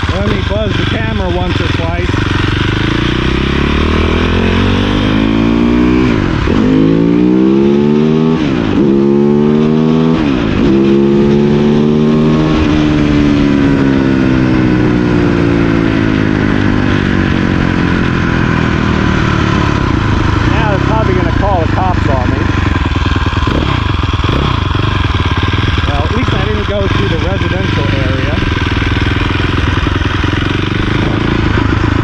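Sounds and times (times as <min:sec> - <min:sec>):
dirt bike engine accelerating: 0:00.0 - 0:32.0.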